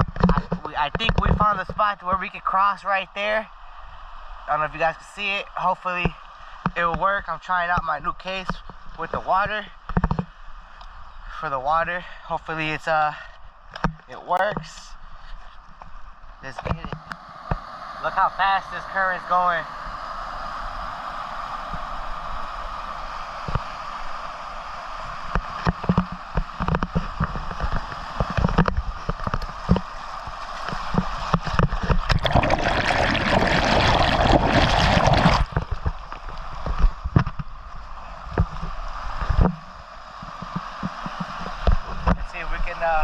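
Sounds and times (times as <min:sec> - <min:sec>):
river rushing: 0:17.0 - 0:36.8.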